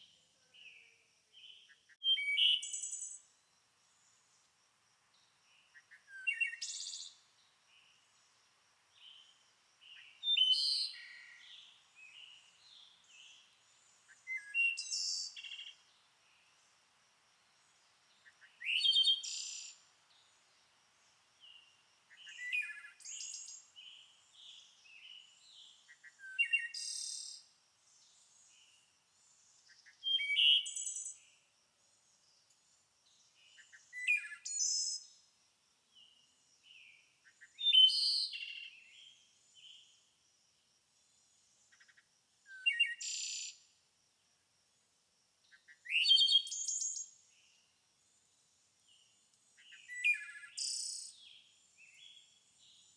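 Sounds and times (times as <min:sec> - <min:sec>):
songbird singing: 0:00.0 - 0:40.2, 0:41.1 - 0:43.7, 0:45.4 - 0:52.9
soft bird chirps: 0:05.2 - 0:08.2, 0:09.0 - 0:16.6, 0:21.4 - 0:31.4, 0:33.2 - 0:35.2, 0:48.9 - 0:52.9.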